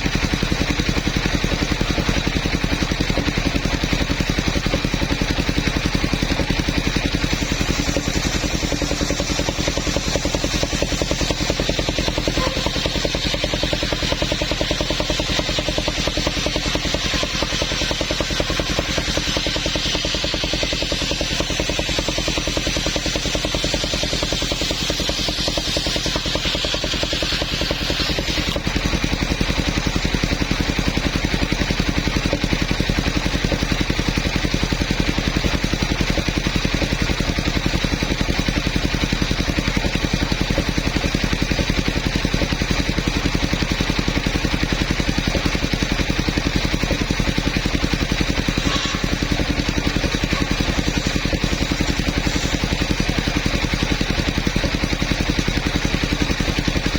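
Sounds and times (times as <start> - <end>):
sawmill engine running: 0.0 - 56.9.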